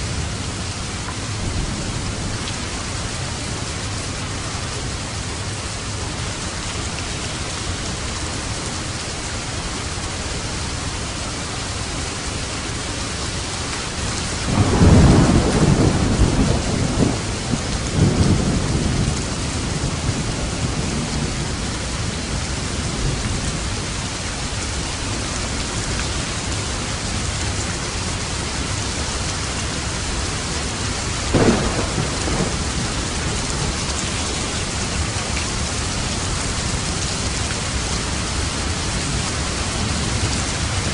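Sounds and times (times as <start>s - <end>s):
heavy rain: 0.0s - 40.9s
rolling thunder: 14.4s - 23.6s, 30.6s - 40.9s
sharp thunderclap: 14.5s - 21.1s, 31.3s - 34.8s.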